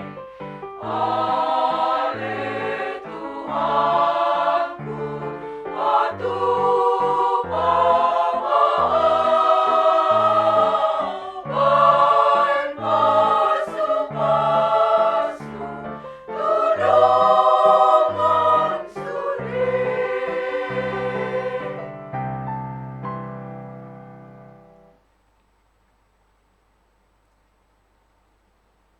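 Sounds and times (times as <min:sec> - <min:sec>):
women's choir singing: 0:00.0 - 0:22.0.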